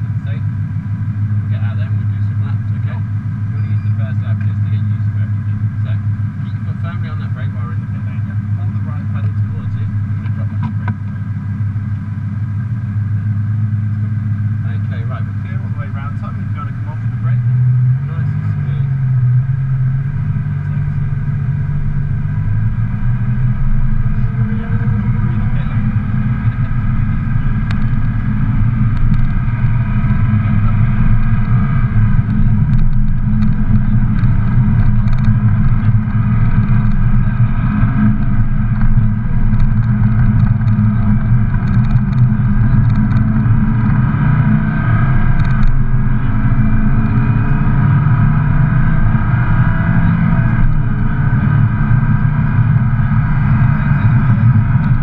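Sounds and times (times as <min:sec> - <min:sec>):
car engine accelerating: 0:00.0 - 0:55.0
steady low rumble: 0:00.0 - 0:55.0.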